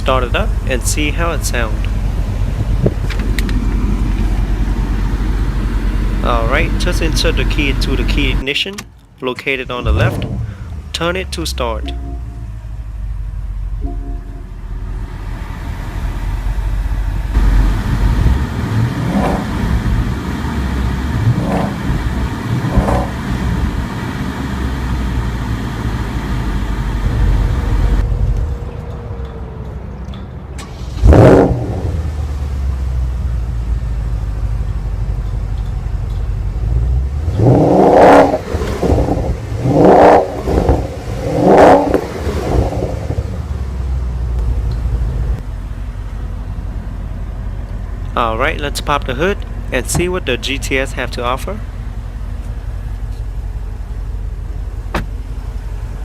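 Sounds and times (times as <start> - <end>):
car engine idling: 0.0 - 56.0
engine revving: 9.7 - 11.7, 17.2 - 28.0, 30.6 - 32.6, 36.6 - 45.4.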